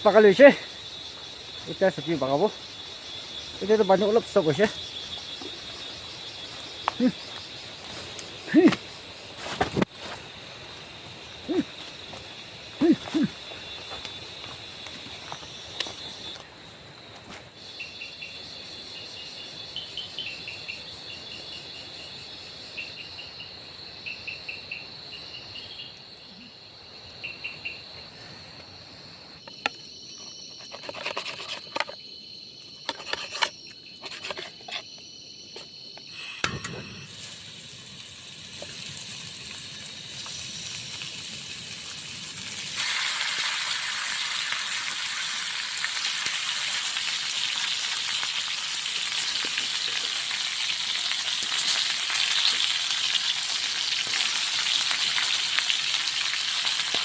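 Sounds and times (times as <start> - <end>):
crickets chirping: 0.0 - 57.0
vegetables sizzling in a pan: 36.9 - 57.0.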